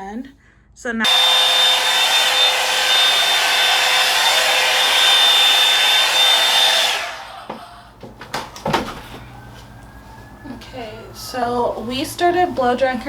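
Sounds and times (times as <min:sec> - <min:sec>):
blow dryer running: 0:01.0 - 0:09.9.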